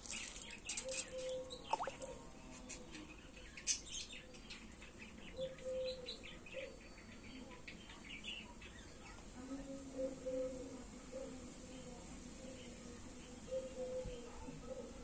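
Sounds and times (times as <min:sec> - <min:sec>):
small birds chirping: 0:00.0 - 0:15.0
faint low bird calls: 0:00.3 - 0:03.8.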